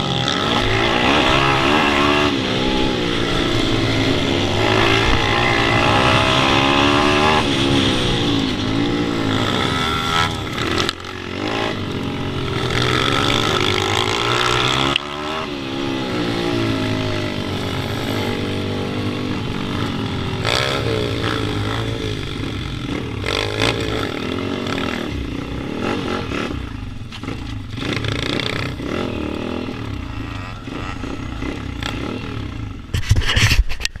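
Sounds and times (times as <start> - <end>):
noisy rush: 0.0 - 27.0
motorbike engine revving: 0.0 - 33.0.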